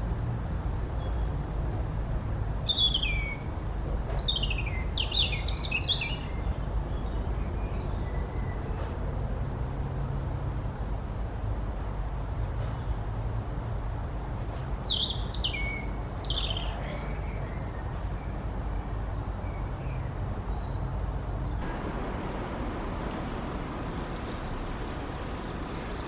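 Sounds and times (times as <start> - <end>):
small songbird singing: 2.2 - 8.7, 12.8 - 21.6, 23.2 - 26.0
low rumble: 21.6 - 26.0.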